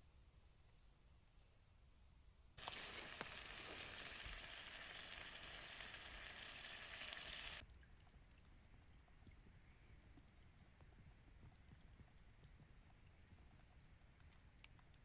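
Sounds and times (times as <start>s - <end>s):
frying pan sizzling: 2.6s - 7.6s.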